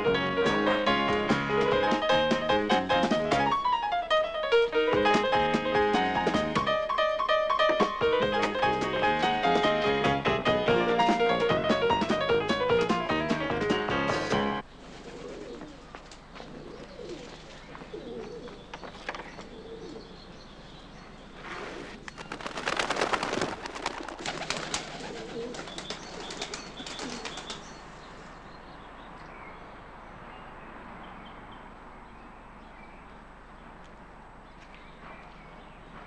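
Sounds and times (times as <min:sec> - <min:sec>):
music: 0:00.0 - 0:14.6
birds chirping and cooing: 0:14.7 - 0:22.8, 0:24.2 - 0:29.6.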